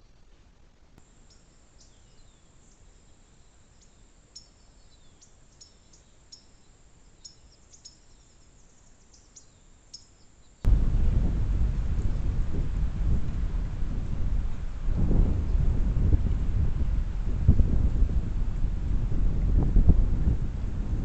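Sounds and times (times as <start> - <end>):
faint bird chirps: 1.1 - 10.7
loud low rumbling: 10.7 - 21.0.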